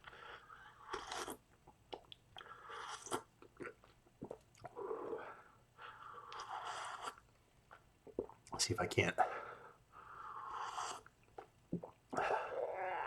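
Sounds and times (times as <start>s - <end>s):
mouth clicks and smacks: 0.9s - 4.8s, 6.3s - 8.7s, 11.0s - 12.4s.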